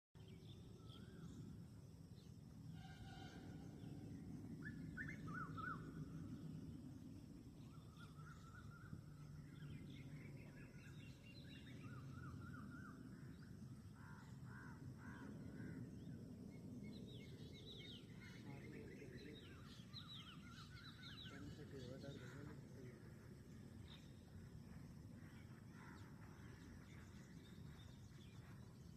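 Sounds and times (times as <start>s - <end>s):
low background rumble: 0.2s - 18.4s
birds chirping and trilling: 0.2s - 28.9s.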